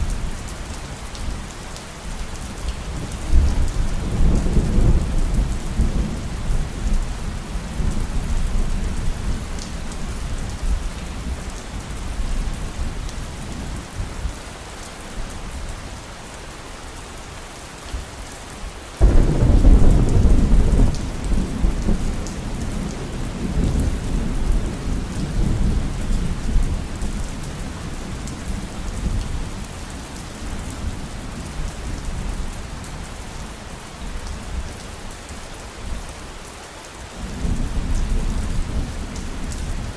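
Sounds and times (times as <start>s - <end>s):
heavy rain: 0.0s - 39.9s
loud thunderclap: 19.0s - 24.3s
rolling thunder: 19.0s - 27.2s.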